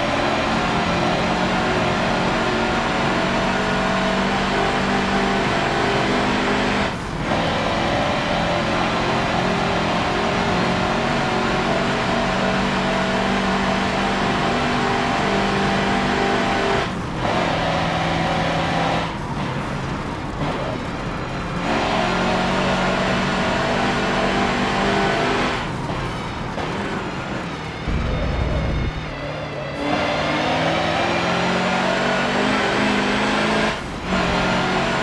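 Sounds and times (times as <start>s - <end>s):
truck diesel engine running hard: 0.0s - 35.0s.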